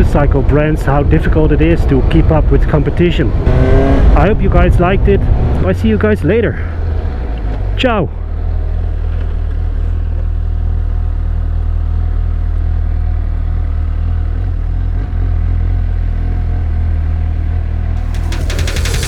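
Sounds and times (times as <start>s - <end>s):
motorcycle engine running: 18.0s - 19.0s.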